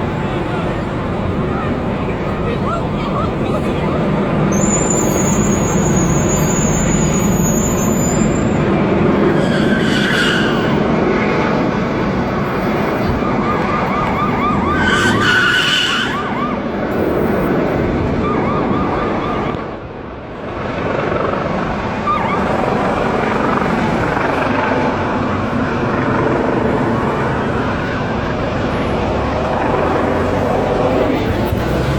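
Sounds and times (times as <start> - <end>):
city traffic noise: 0.0 - 31.9
emergency siren yelping: 0.7 - 8.6, 11.6 - 19.9, 21.1 - 31.6.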